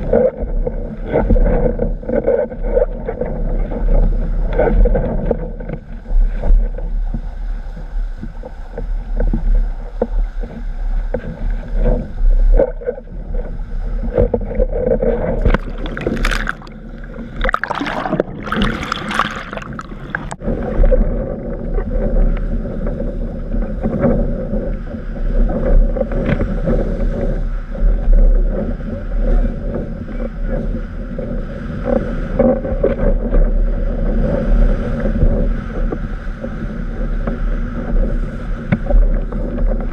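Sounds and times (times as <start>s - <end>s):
wind buffeting microphone: 0.0s - 39.9s
water rushing past board: 8.2s - 28.7s.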